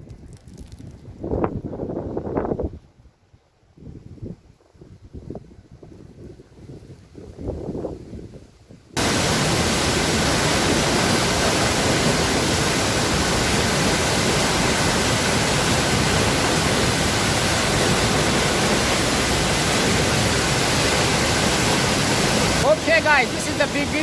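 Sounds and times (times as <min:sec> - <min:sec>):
waterfall rushing: 0:09.0 - 0:24.0.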